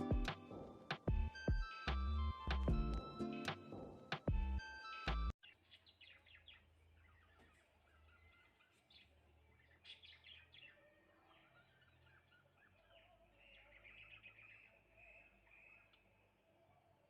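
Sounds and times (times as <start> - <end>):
small birds chirping: 5.0 - 17.0.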